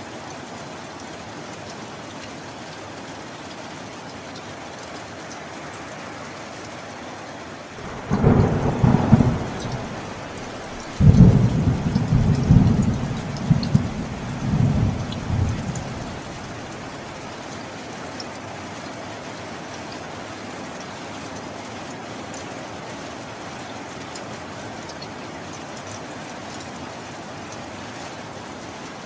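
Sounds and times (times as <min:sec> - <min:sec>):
heavy rain: 0:00.0 - 0:29.0
thunder rumbling: 0:07.8 - 0:17.0.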